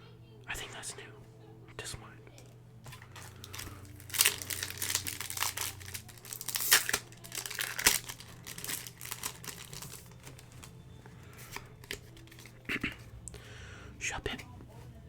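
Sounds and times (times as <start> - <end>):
foil wrapper crinkling and tearing: 2.9 - 13.0.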